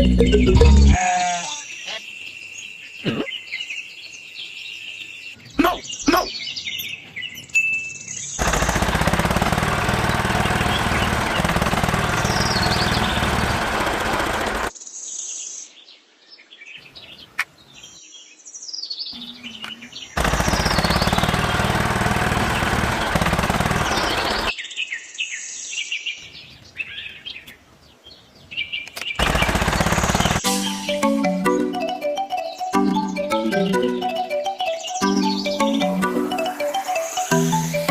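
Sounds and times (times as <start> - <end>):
birds chirping: 0.0 - 37.9
small motor rattling: 8.4 - 14.7, 20.2 - 24.5.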